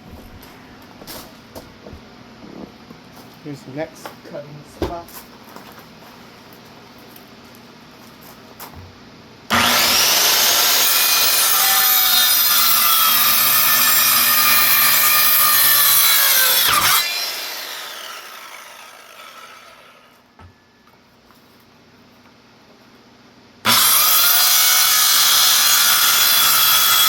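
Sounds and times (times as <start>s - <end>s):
power saw cutting wood: 9.5s - 20.1s, 23.7s - 27.0s.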